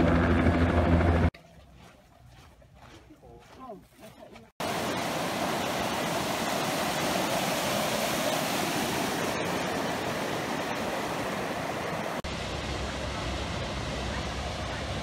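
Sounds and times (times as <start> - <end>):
falling water rushing: 4.6 - 15.0.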